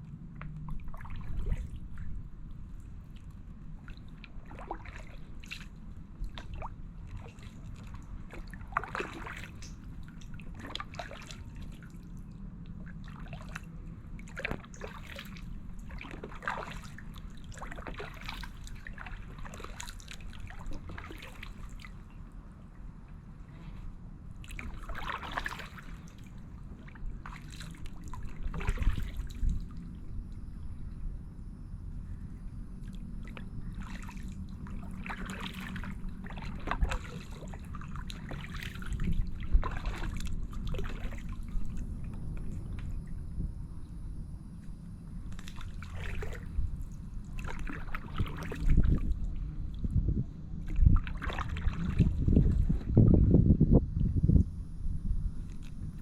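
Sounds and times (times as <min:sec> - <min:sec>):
kayak paddle strokes in water: 0:00.0 - 0:31.0, 0:32.1 - 0:43.5, 0:44.5 - 0:54.6
low rumble: 0:00.0 - 0:56.0
water trickling off paddle: 0:00.6 - 0:12.0, 0:13.0 - 0:22.4, 0:24.4 - 0:29.8, 0:32.8 - 0:43.2, 0:45.3 - 0:49.5.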